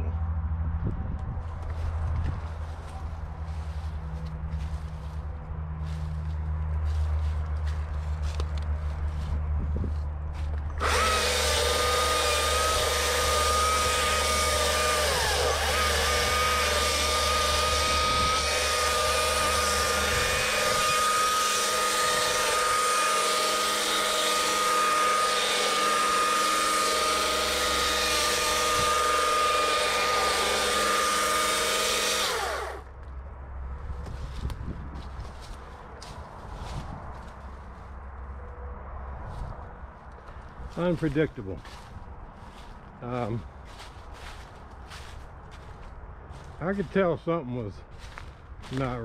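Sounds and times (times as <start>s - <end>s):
chainsaw cutting wood: 10.6s - 32.9s.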